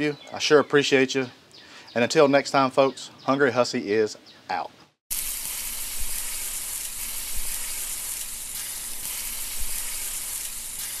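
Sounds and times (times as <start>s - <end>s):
food sizzling: 5.1s - 11.0s.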